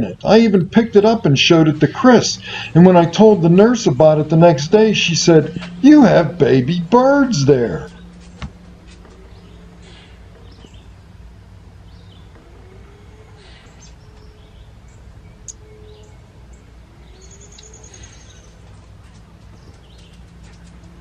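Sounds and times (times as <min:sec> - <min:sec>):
steady low hum: 0:00.0 - 0:21.0
low rising and falling bird calls: 0:01.0 - 0:21.0
bird trill: 0:11.8 - 0:18.6.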